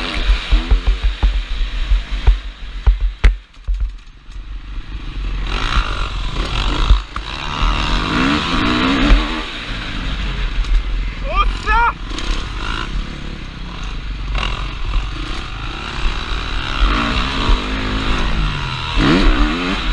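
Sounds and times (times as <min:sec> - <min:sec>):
motorcycle engine revving: 0:00.0 - 0:19.9
sharp knocks and clatter: 0:00.1 - 0:04.4, 0:05.6 - 0:07.9.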